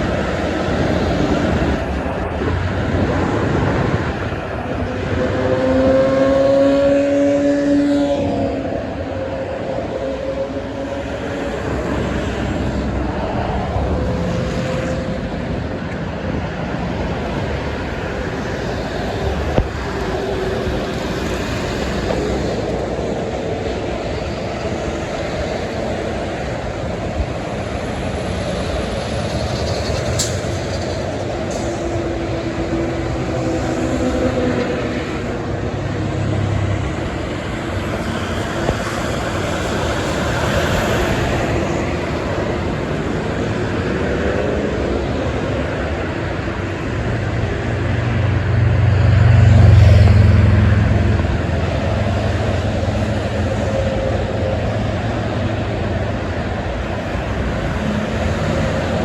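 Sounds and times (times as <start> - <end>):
heavy highway traffic: 0.0 - 59.0
passing vehicle pitched tone: 46.8 - 59.0.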